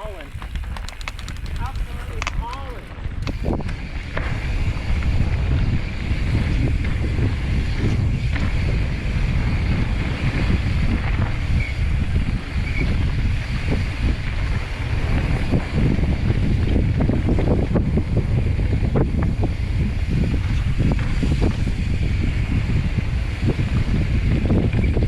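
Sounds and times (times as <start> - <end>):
bike knocking and rattling: 0.0 - 5.2
wind rumbling on microphone: 0.0 - 25.0.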